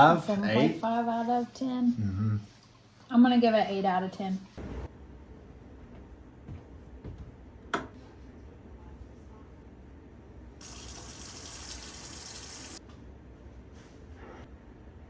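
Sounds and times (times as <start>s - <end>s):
water running from a tap: 10.6s - 12.8s.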